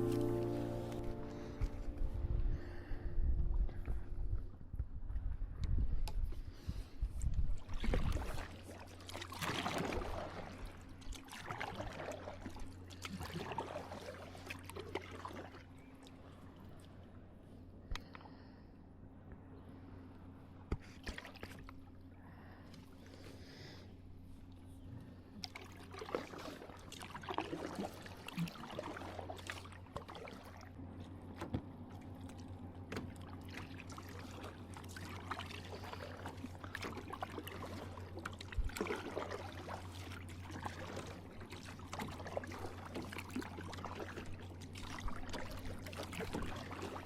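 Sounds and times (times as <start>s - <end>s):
paddle splashing water: 0.0s - 2.6s, 7.6s - 16.9s, 20.7s - 21.9s, 25.4s - 47.0s
steady low hum: 0.0s - 7.7s, 28.0s - 47.0s.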